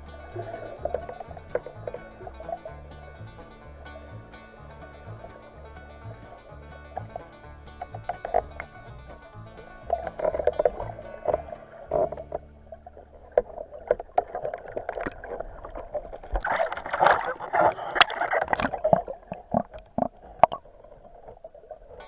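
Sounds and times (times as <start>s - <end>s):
water sloshing and splashing: 0.0s - 22.0s
irregular clicks and knocks: 6.9s - 12.4s.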